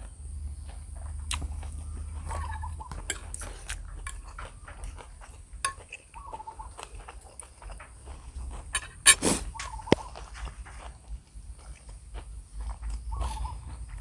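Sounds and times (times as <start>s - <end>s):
steady low hum: 0.0s - 14.0s
utensils clinking against bowl: 2.2s - 7.4s, 8.7s - 9.2s.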